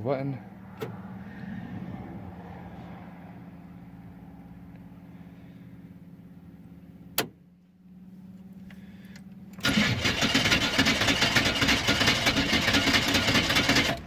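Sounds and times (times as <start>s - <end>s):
diesel engine cranking and clattering: 9.1s - 14.0s.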